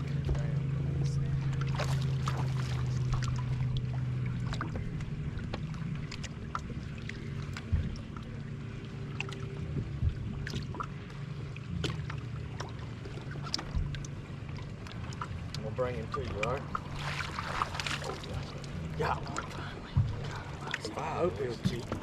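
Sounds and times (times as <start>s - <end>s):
boat motor humming: 0.0s - 22.0s
water splashing: 0.0s - 22.0s
knocks against boat: 7.4s - 8.3s, 16.2s - 20.9s, 21.6s - 22.0s.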